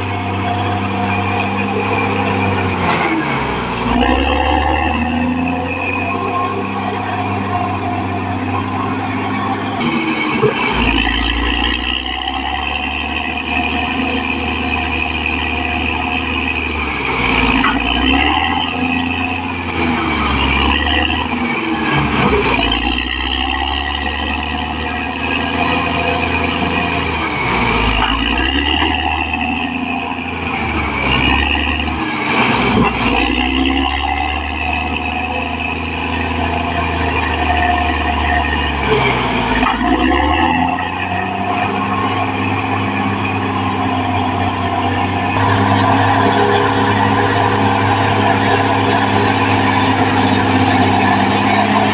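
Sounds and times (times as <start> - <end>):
bulldozer diesel engine working: 0.0 - 51.9.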